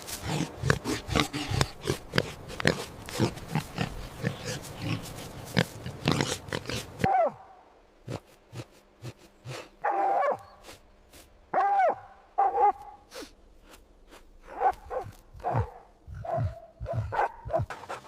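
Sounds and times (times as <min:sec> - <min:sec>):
pig grunting: 0:00.2 - 0:07.1.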